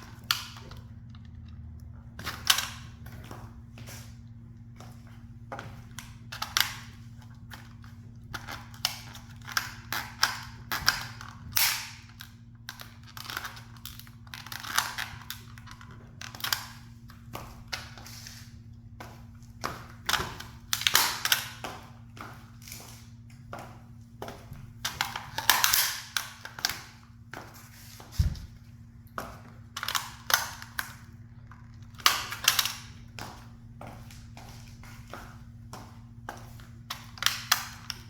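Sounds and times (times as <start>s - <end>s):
toy car cracking and crunching: 8.3s - 16.8s, 24.9s - 26.9s, 31.7s - 32.9s.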